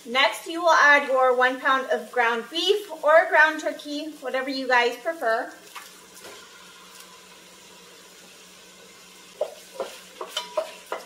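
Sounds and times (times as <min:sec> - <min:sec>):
meat sizzling in oil: 0:00.0 - 0:11.0
wooden spoon scraping a pot: 0:09.4 - 0:11.0.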